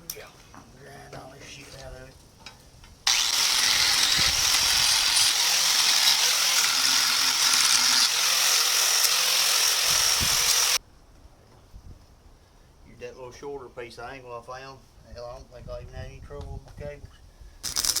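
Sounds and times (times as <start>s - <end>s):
welder crackling sizzle: 17.6s - 18.0s.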